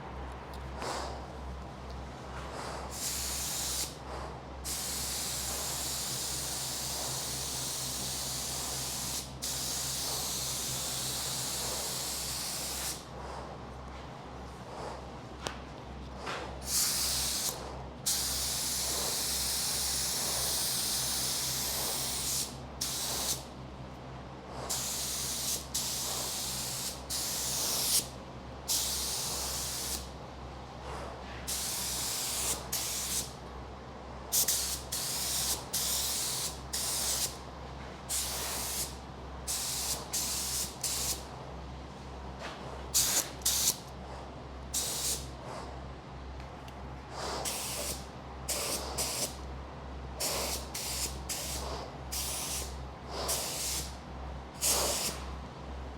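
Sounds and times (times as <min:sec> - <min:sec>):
steady low hum: 0:00.0 - 0:55.9
spray gun hissing: 0:02.9 - 0:04.0, 0:04.7 - 0:13.0, 0:16.6 - 0:23.4, 0:24.7 - 0:28.1, 0:28.7 - 0:30.1, 0:31.5 - 0:33.3, 0:34.3 - 0:37.4, 0:38.1 - 0:41.2, 0:43.0 - 0:43.8, 0:44.8 - 0:45.3, 0:47.2 - 0:49.4, 0:50.2 - 0:54.0, 0:54.6 - 0:55.2.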